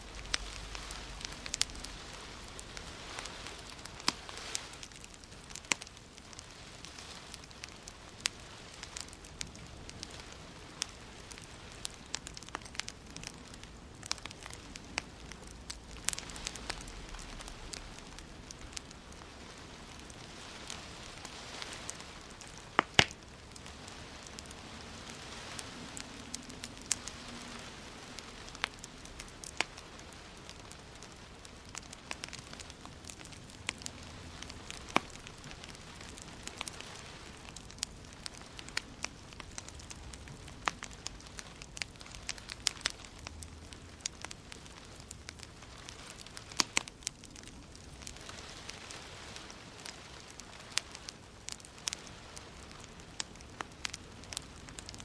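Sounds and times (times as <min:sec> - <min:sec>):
steady hiss: 0:00.0 - 0:55.0
wood fire crackling: 0:00.0 - 0:55.0.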